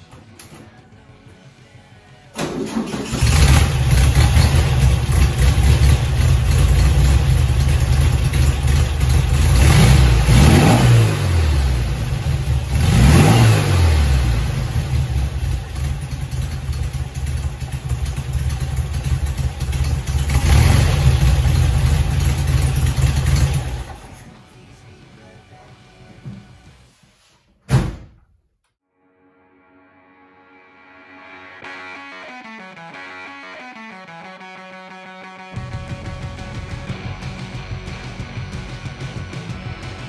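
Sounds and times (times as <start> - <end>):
car engine revving: 2.6 - 24.2.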